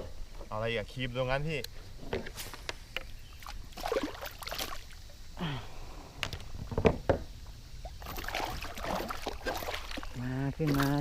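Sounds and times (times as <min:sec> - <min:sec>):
water splashing: 0:03.3 - 0:05.1, 0:07.8 - 0:11.0
knocks against a kayak: 0:06.2 - 0:07.3.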